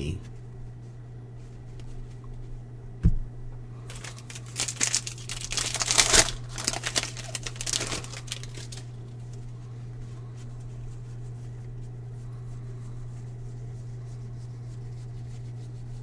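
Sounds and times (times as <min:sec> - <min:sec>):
short thump: 0:03.0 - 0:03.3
foil wrapper crinkling and tearing: 0:03.8 - 0:09.6.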